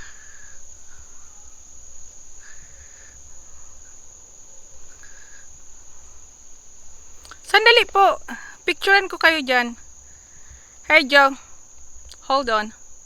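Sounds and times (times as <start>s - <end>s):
insects droning: 0.0s - 13.0s
faint short calls: 7.1s - 9.8s, 10.4s - 12.8s.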